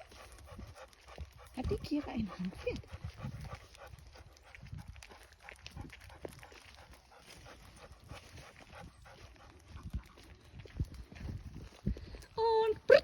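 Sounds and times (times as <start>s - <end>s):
footsteps on forest path: 0.0s - 12.6s
pony hooves on path: 0.0s - 13.0s.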